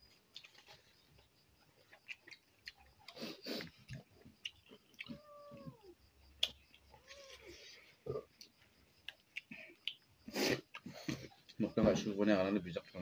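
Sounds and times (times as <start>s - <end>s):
faint chewing and lip-smacking: 0.1s - 11.6s
cat meowing: 5.0s - 6.0s, 6.9s - 7.6s.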